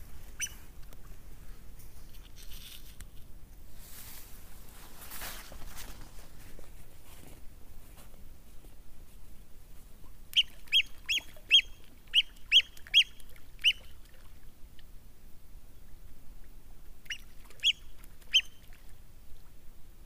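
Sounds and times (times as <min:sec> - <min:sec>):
bird giving sharp high calls: 0:00.4 - 0:00.6, 0:10.4 - 0:13.9.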